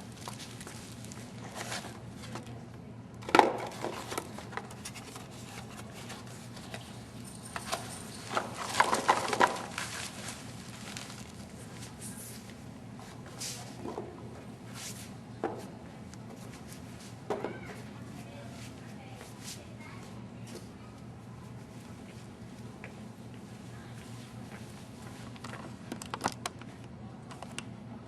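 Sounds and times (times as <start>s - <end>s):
hard objects knocking and clattering: 7.6s - 9.8s.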